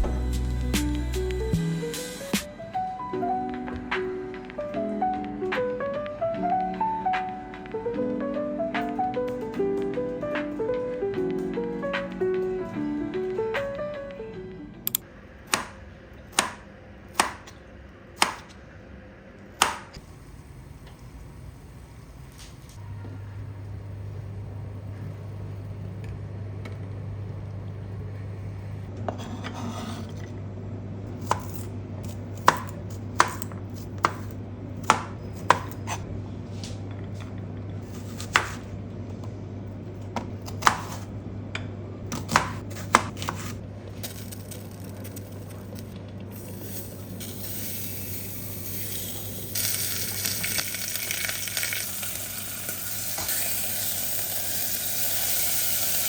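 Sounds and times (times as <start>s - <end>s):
steady low hum: 0.0s - 50.8s
knife chopping on cutting board: 15.5s - 16.6s, 17.2s - 17.6s, 18.2s - 18.5s, 19.6s - 19.9s, 31.2s - 36.0s, 37.9s - 38.7s, 40.4s - 41.1s, 42.1s - 43.6s
food sizzling in hot pan: 46.5s - 56.0s.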